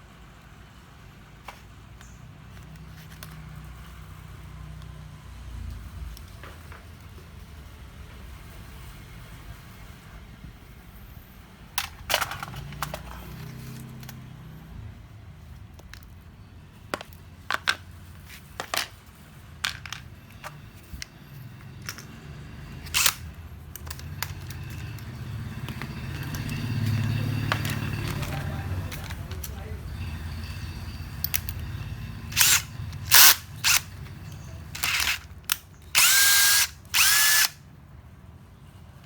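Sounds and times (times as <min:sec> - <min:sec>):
small hard parts clicking: 0:11.8 - 0:14.3, 0:15.6 - 0:37.6.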